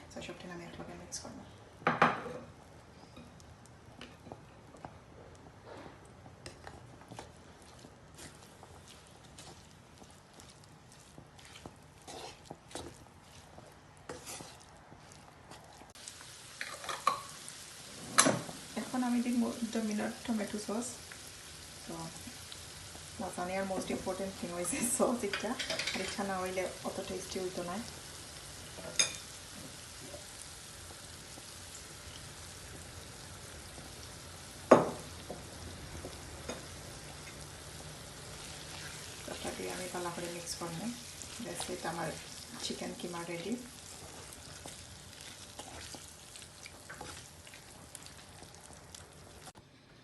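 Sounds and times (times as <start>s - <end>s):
low steady sizzle: 0.0s - 50.0s
spatula scraping frying pan: 11.0s - 15.2s.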